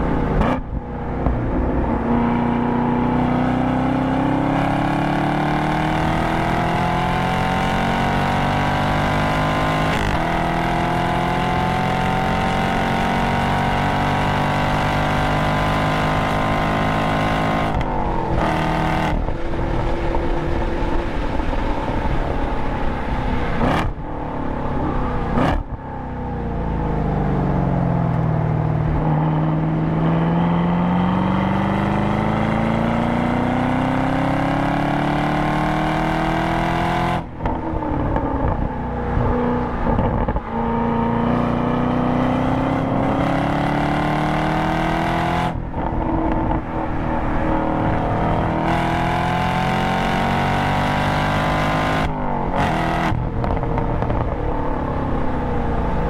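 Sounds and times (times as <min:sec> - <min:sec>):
car engine revving from inside: 0:47.7 - 0:54.2.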